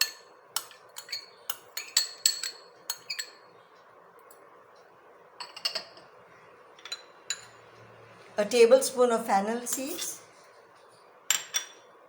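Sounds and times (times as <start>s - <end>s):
utensils clinking on jar: 0.0s - 3.4s, 5.4s - 6.0s.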